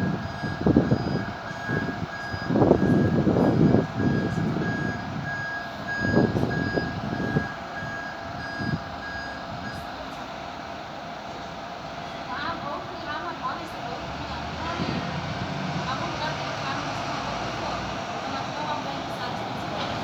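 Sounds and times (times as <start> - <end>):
reversing alarm beeping: 0.0 - 10.0
low engine and traffic rumble: 0.0 - 20.0.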